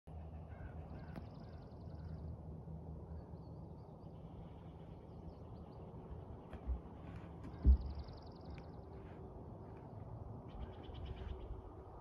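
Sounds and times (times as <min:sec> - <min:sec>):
low steady rumble: 0:00.1 - 0:12.0
songbirds chirping faintly: 0:00.1 - 0:12.0.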